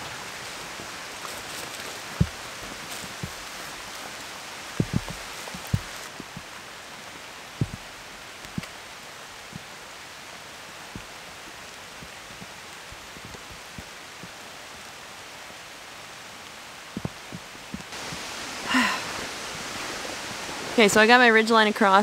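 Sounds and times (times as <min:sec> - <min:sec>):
steady rain: 0:00.0 - 0:22.0
woman's voice: 0:20.8 - 0:22.0.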